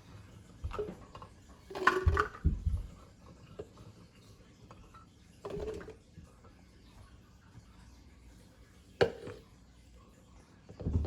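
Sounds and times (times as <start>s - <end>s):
kitchen items knocking and clattering: 0.6s - 3.0s, 10.7s - 11.0s.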